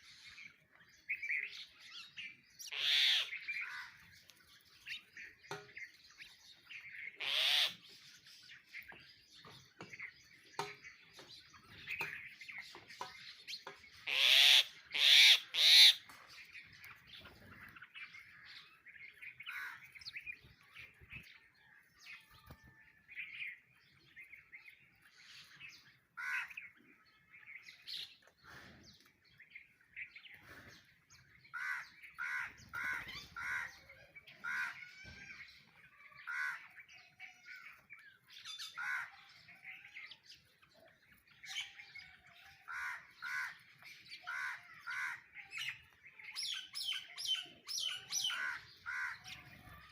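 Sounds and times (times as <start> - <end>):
small birds chirping: 0.0 - 49.9
loud harsh bird calls: 2.6 - 4.2, 6.8 - 8.1, 13.9 - 16.2, 17.0 - 21.0, 25.3 - 27.0, 30.0 - 49.9.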